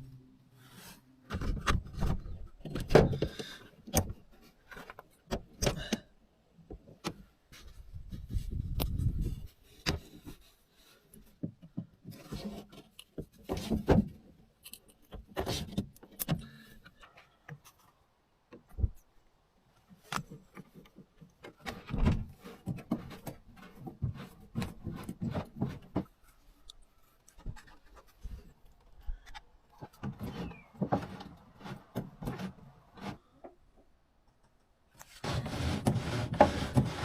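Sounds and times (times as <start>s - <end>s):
rubbing scrapes: 30.1s - 33.3s, 35.0s - 37.0s.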